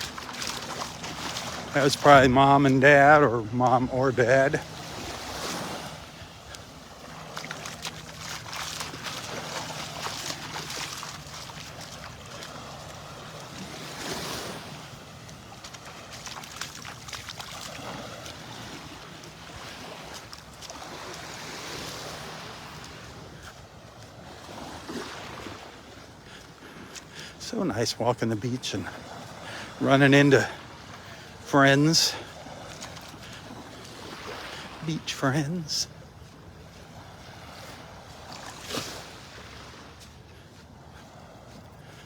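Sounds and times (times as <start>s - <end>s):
surf washing onto beach: 0.0s - 23.5s, 26.9s - 36.0s.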